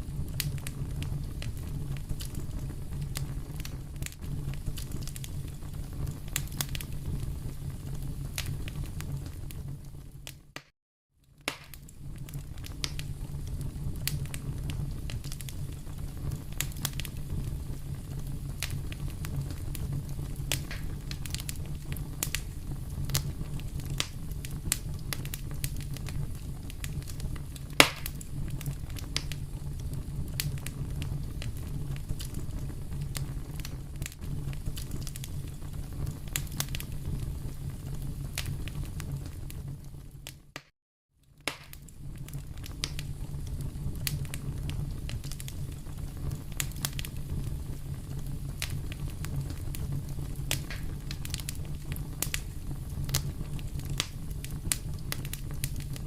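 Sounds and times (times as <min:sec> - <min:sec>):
low rumble of flames: 0:00.0 - 0:10.6, 0:11.2 - 0:40.6, 0:41.2 - 0:56.0
fire crackling and popping: 0:00.0 - 0:56.0.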